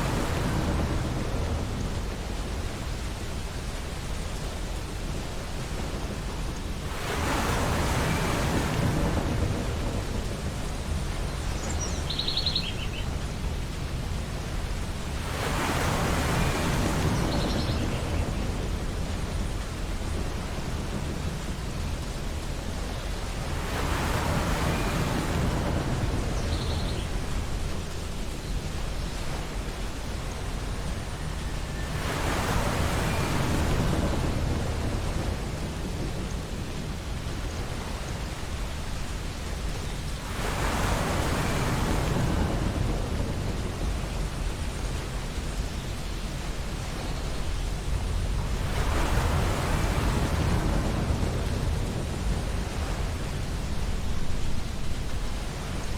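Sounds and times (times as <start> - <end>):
low rumble of surf: 0.0 - 55.9
ocean waves breaking on beach: 0.0 - 55.9.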